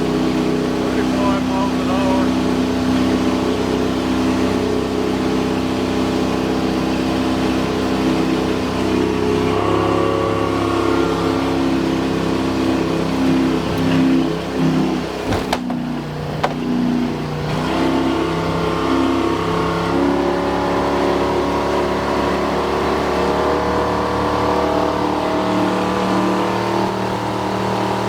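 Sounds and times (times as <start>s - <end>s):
loud boat engine running: 0.0s - 28.0s.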